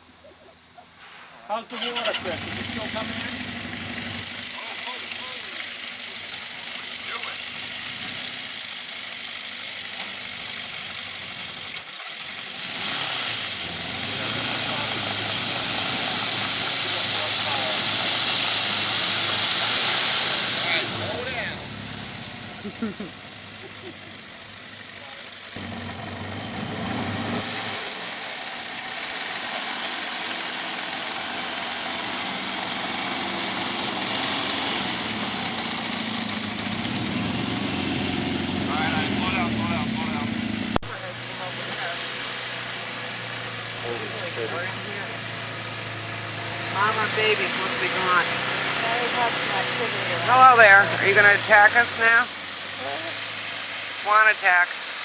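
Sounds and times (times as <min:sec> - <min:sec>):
motorcycle engine running: 0:01.8 - 0:54.2.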